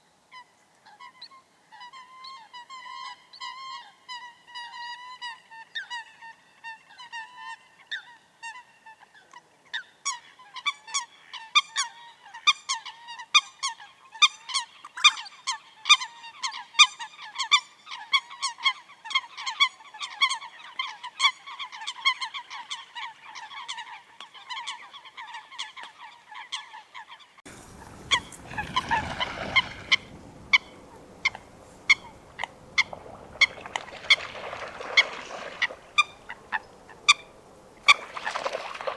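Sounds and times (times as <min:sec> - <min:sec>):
coot honking calls: 0:27.5 - 0:38.9.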